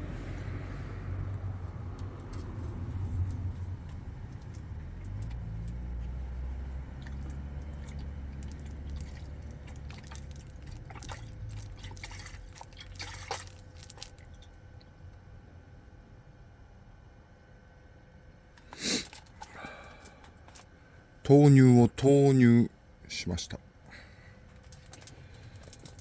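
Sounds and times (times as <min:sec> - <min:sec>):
liquid pouring and splashing: 0:06.6 - 0:14.5.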